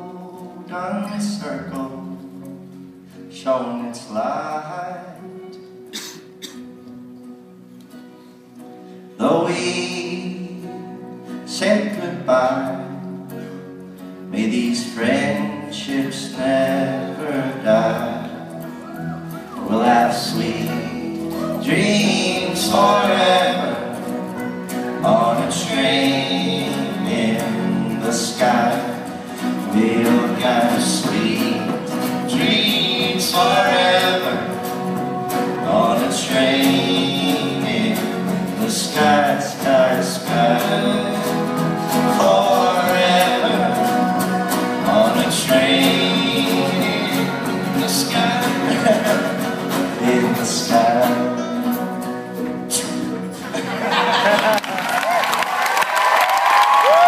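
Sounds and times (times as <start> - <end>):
strummed acoustic guitars: 0.0 - 57.0
voices singing together: 14.4 - 54.6.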